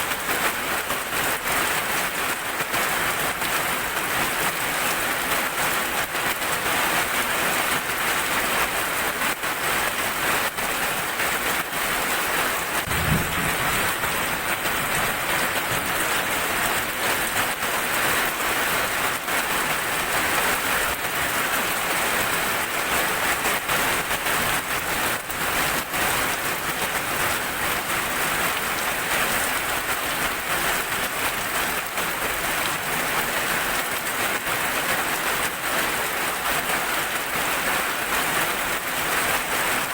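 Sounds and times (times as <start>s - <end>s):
heavy rain on hard surface: 0.0s - 39.9s
low thump: 12.9s - 15.0s.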